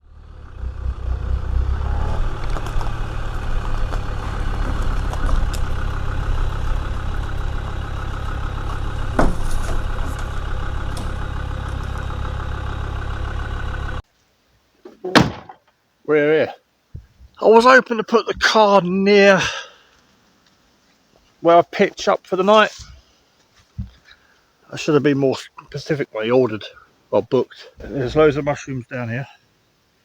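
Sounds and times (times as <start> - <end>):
engine and road rumble: 0.0 - 14.1, 22.1 - 24.9
sharp knock: 15.1 - 15.6.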